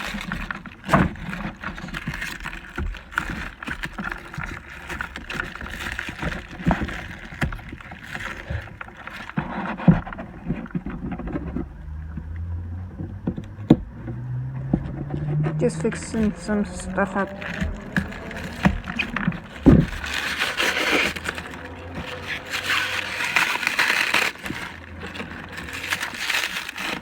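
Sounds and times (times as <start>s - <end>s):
plastic toys knocking and clicking: 0.0s - 11.7s
packaging rustling: 0.0s - 12.1s, 13.8s - 27.0s.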